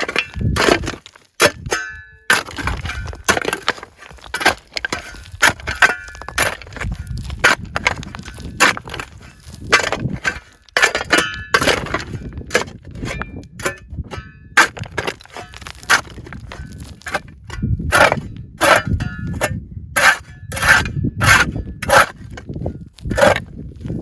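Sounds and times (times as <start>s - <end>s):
crunching scraping on gritty ground: 0.0s - 24.0s.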